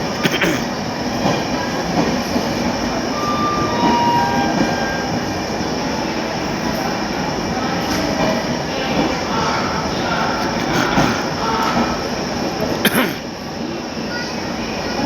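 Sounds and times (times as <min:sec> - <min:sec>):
train rumbling on rails: 0:00.0 - 0:15.0
train wheels squealing: 0:03.0 - 0:05.6.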